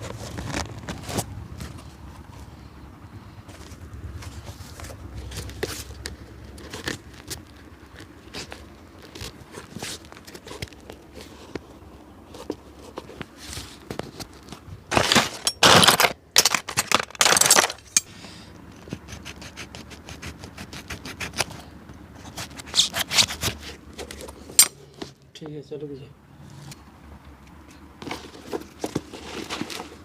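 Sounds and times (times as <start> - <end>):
scraping on shoe sole: 18.8 - 25.2.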